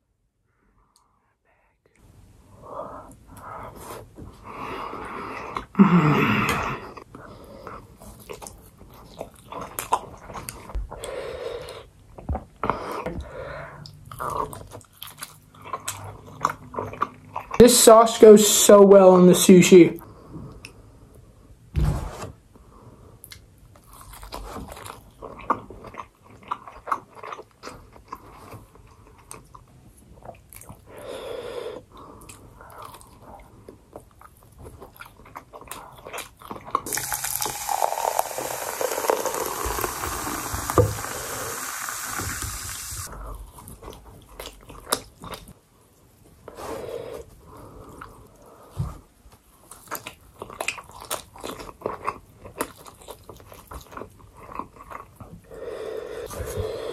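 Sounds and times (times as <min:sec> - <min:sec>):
chewing and biting: 0:23.3 - 0:30.8, 0:32.2 - 0:37.8, 0:43.4 - 0:45.6, 0:49.6 - 0:55.4.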